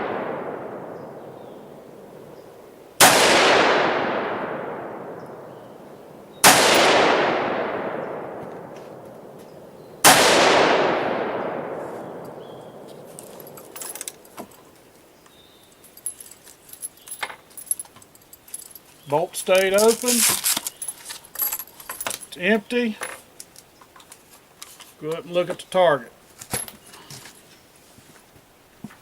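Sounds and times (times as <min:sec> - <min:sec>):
rifle shots with echo: 0:00.0 - 0:14.3.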